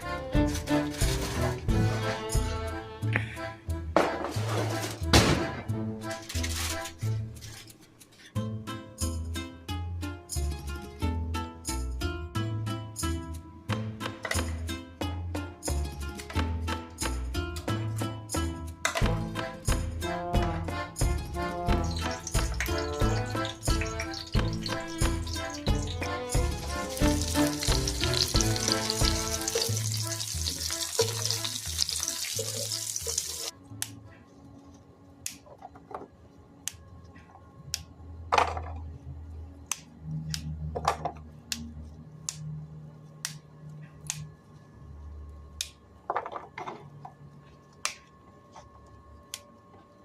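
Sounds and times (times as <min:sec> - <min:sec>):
background music: 0:00.0 - 0:40.7
food sizzling in a frying pan: 0:21.8 - 0:33.5.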